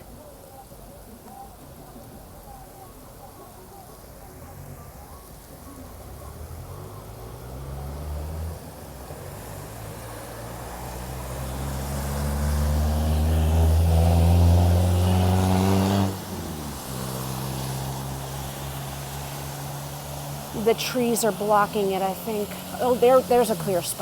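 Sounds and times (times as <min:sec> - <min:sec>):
steady rain hiss: 0:00.0 - 0:24.0
motor vehicle engine hum: 0:05.1 - 0:24.0.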